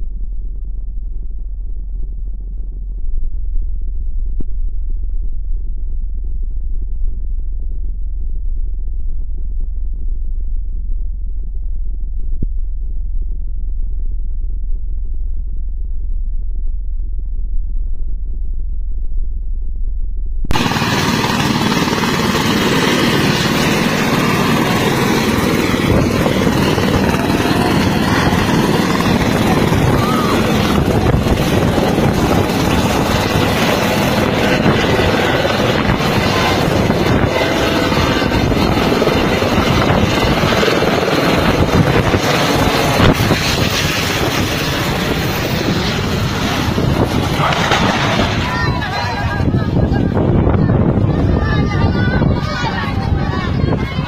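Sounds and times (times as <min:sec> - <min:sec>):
helicopter rotor and engine: 0:20.5 - 0:54.0.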